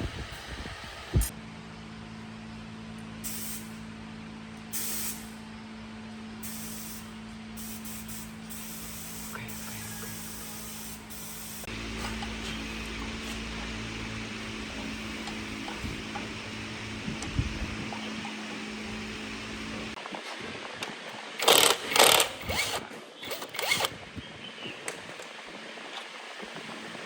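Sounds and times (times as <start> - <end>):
steady low hum: 0.0 - 22.9
hissing spray bursts: 3.2 - 3.7, 4.8 - 5.4, 6.4 - 12.2.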